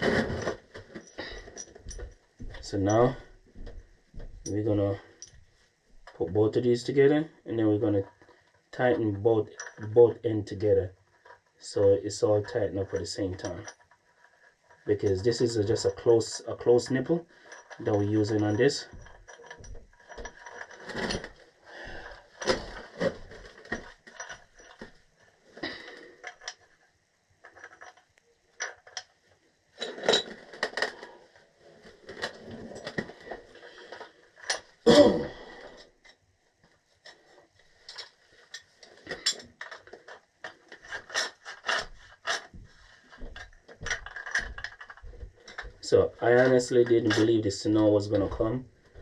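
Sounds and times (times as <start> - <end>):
metal pipe fittings clinking: 12.5 - 13.8, 17.4 - 21.3, 29.8 - 30.9, 37.9 - 42.5.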